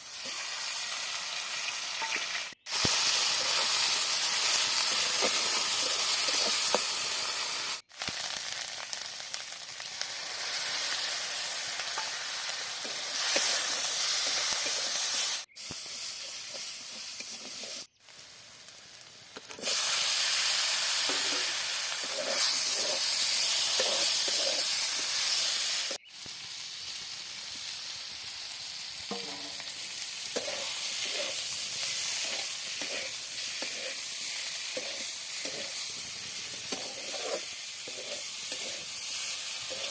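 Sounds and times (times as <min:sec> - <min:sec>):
food sizzling in a pan: 0:00.0 - 0:39.9
spoon stirring and scraping: 0:30.4 - 0:31.4, 0:34.7 - 0:35.8, 0:36.5 - 0:39.0, 0:39.6 - 0:39.9.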